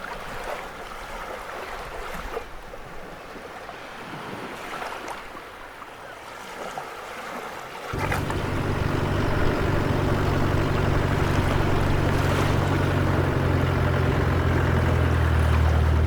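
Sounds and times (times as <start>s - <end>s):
engine running low drone: 8.0s - 16.0s.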